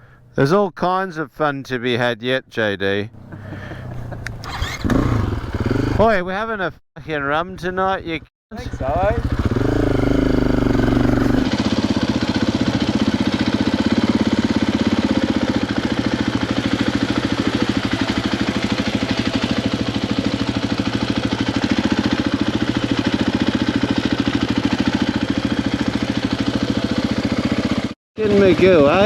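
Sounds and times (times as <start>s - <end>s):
dirt bike engine running: 3.8s - 6.1s, 8.6s - 28.0s
second engine tone: 8.6s - 11.5s.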